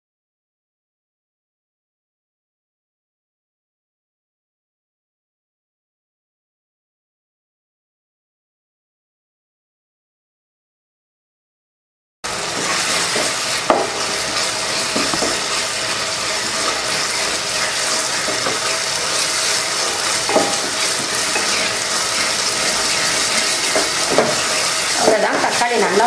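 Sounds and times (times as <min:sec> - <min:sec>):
vegetables sizzling in oil: 0:12.3 - 0:26.0
wooden spatula scraping pot: 0:12.4 - 0:25.6.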